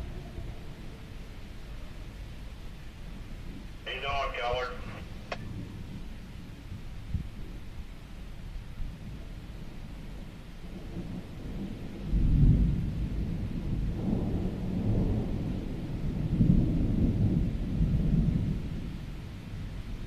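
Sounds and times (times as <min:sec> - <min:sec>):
thunder rumbling: 0:00.0 - 0:07.6, 0:10.7 - 0:19.9
rain hissing: 0:00.0 - 0:07.7.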